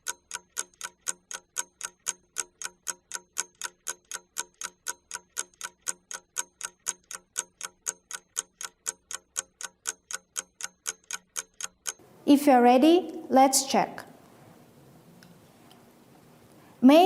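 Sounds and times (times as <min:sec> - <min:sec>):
fast clock ticking: 0:00.0 - 0:12.0.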